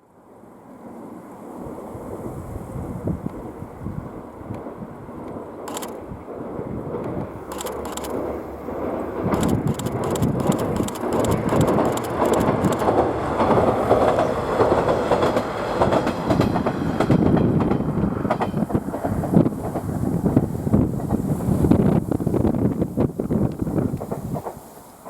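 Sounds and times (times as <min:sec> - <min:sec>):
train rumbling past: 0:00.0 - 0:25.0
wheels clicking over rail joints: 0:09.2 - 0:20.0.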